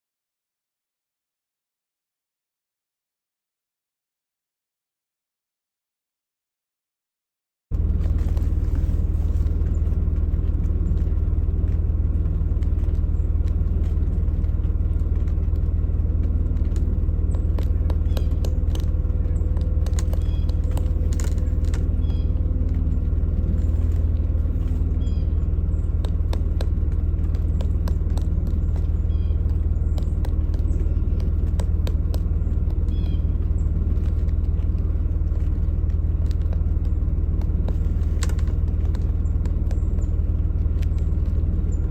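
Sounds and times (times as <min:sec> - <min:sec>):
low engine rumble: 0:07.7 - 0:41.9
woodpecker tapping on tree: 0:07.8 - 0:41.9
faint high bird chirps: 0:16.0 - 0:26.6, 0:28.4 - 0:34.0.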